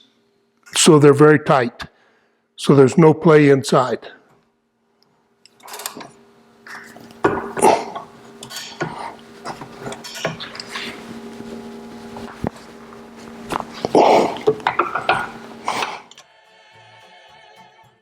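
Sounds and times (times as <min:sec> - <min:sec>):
metal tools clinking and scraping: 0:09.8 - 0:10.8.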